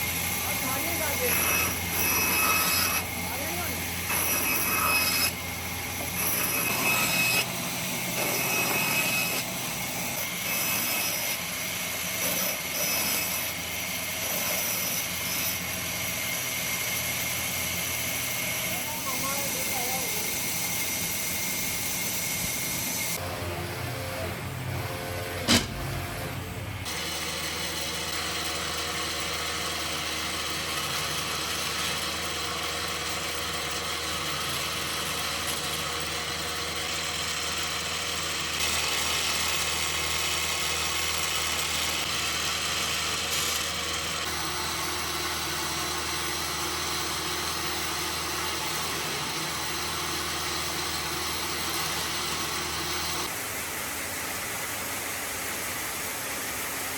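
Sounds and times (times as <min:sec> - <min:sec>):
woodworking machine running: 0:00.0 - 0:56.9
sharp click: 0:25.5 - 0:25.9.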